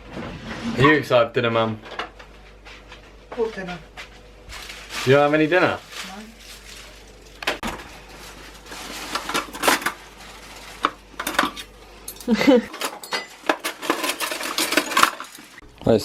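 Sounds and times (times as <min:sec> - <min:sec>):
cutlery and crockery clinking: 0:10.8 - 0:15.6.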